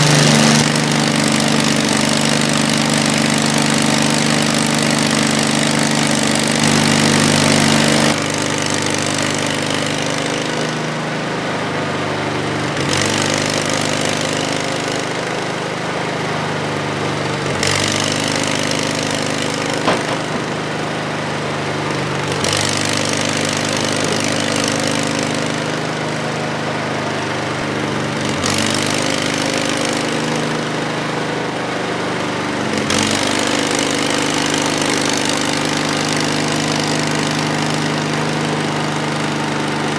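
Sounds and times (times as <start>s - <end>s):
saw blade cutting log: 0.0s - 9.3s, 17.3s - 39.9s
gas engine running: 0.0s - 39.9s.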